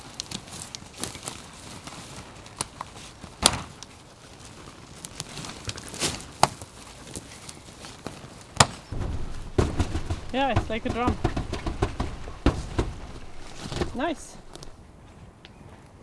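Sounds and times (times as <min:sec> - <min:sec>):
tent poles clicking and knocking: 0:09.0 - 0:14.8.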